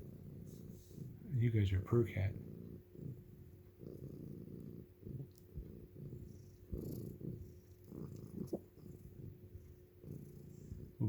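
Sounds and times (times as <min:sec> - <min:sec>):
cats purring: 0:00.0 - 0:11.0.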